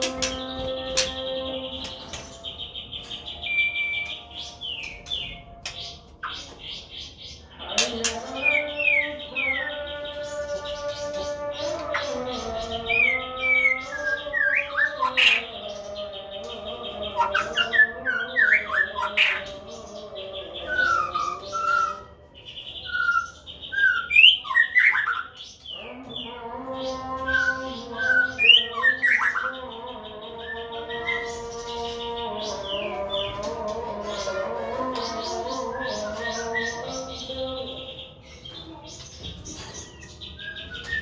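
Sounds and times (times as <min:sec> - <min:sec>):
birds calling whistled notes: 0:20.6 - 0:25.8, 0:34.6 - 0:41.0.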